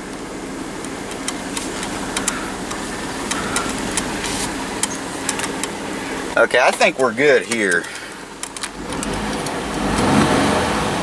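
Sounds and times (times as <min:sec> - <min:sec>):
car engine running: 0:00.0 - 0:11.0
air-conditioning fan blowing: 0:00.1 - 0:08.6
sharp clicks and crackles: 0:00.8 - 0:05.8, 0:06.6 - 0:10.1.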